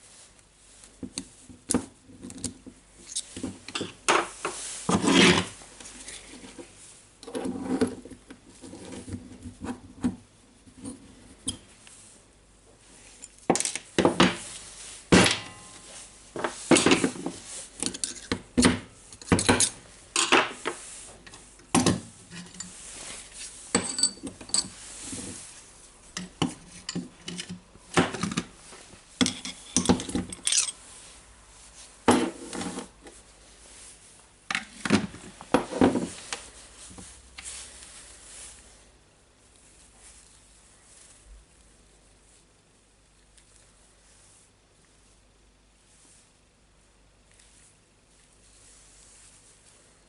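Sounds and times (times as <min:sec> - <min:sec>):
metal parts clinking on workbench: 0:23.7 - 0:24.7, 0:29.2 - 0:30.8.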